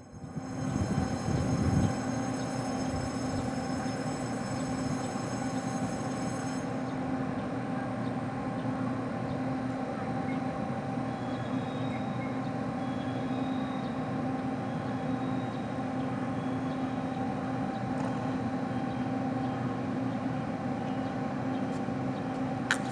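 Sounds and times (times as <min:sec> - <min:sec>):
high whine: 0:00.0 - 0:07.3
train machinery humming: 0:00.0 - 0:12.8, 0:18.6 - 0:22.9.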